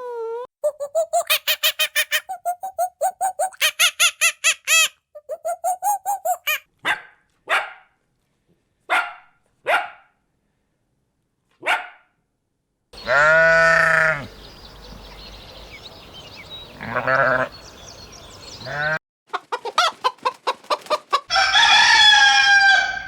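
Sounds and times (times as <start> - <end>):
high-pitched squeaks: 0.6 - 3.8, 5.2 - 6.6
dog barking: 6.8 - 8.0, 8.9 - 10.2, 11.6 - 12.2.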